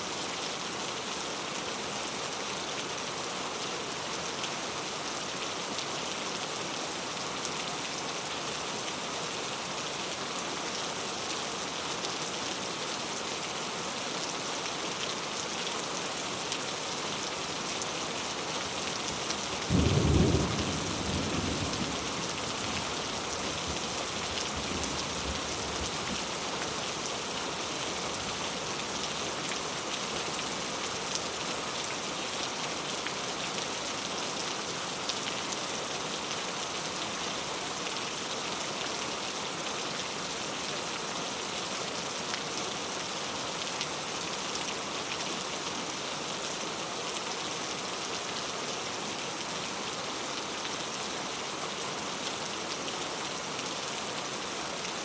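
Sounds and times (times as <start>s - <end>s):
steady rain: 0.0s - 55.0s
thunder rumbling: 19.7s - 22.8s.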